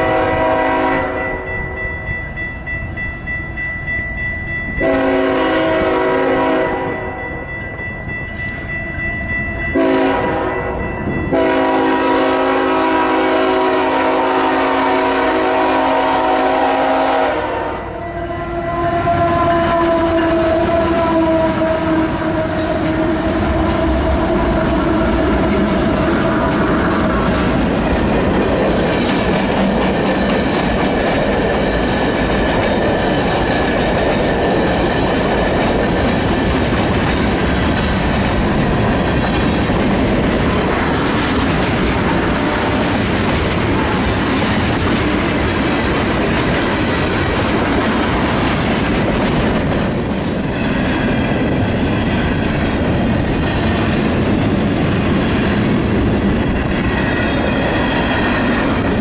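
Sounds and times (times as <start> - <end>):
train wheels clattering: 18.9 - 59.0.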